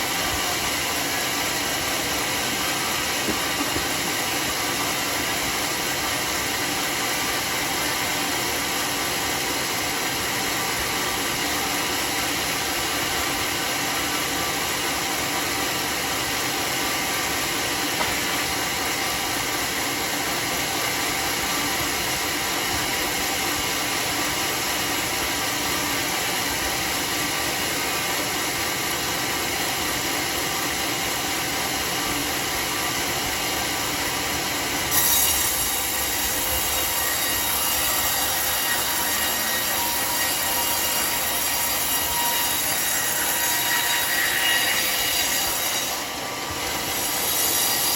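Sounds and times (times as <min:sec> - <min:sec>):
sawmill mechanical drone: 0:00.0 - 0:47.9.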